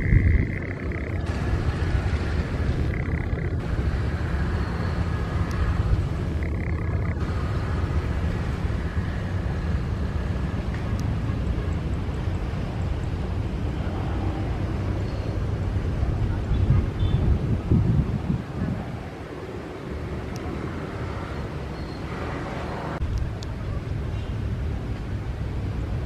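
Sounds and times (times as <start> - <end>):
jet engines running: 0.0 - 16.5.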